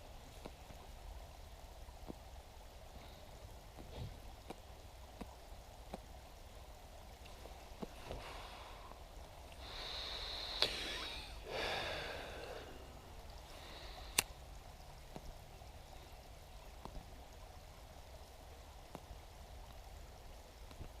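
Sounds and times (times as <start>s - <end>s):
low steady hiss: 0.0s - 21.0s
faint ticks: 0.1s - 21.0s
person breathing out: 9.6s - 14.2s.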